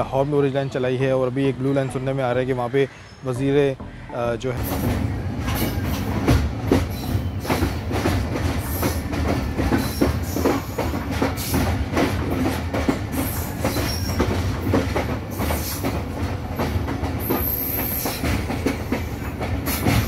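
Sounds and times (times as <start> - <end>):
train wheels rumbling on rail: 4.5 - 20.0
wheels clanking over rail joints: 4.5 - 20.0.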